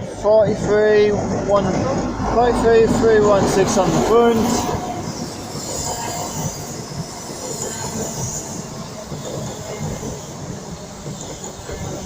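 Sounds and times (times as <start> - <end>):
train wheels rumbling on rail: 0.0 - 12.0
high-pitched train squeal: 3.5 - 12.0.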